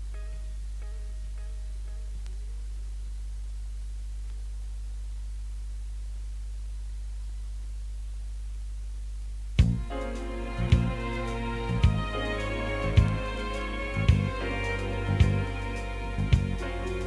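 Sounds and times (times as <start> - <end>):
music: 0.0 - 2.5, 9.6 - 17.0
steady low hum: 0.0 - 17.0.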